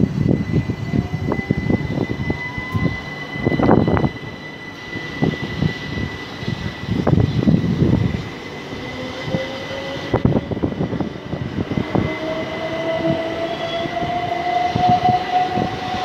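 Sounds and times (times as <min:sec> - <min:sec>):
traction motor whine: 0:00.0 - 0:16.0.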